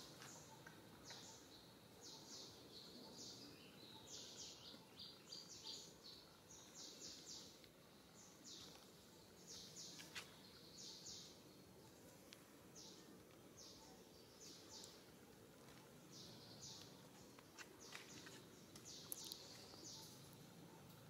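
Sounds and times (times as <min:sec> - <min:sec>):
faint high bird chirps: 0:00.0 - 0:12.1, 0:15.7 - 0:21.0
low steady background noise: 0:00.0 - 0:21.0.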